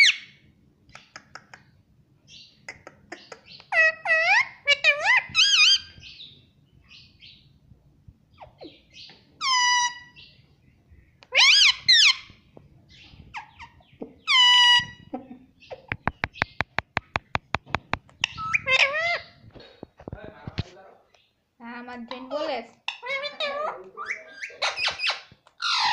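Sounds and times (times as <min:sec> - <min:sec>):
parrot talking calls: 0:03.2 - 0:06.0, 0:09.4 - 0:10.3, 0:11.3 - 0:12.4, 0:13.3 - 0:15.1, 0:18.2 - 0:19.4, 0:22.9 - 0:25.9
rapid clicks: 0:16.0 - 0:18.2.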